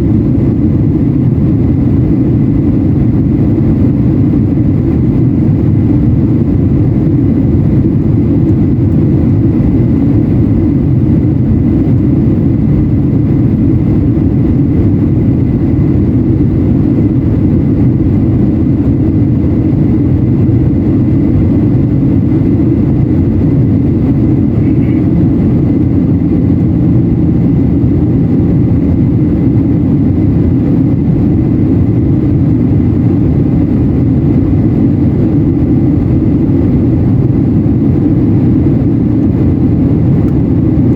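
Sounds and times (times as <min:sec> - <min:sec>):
airliner cabin engine rumble: 0:00.0 - 0:40.9
faint high whine: 0:20.9 - 0:29.7.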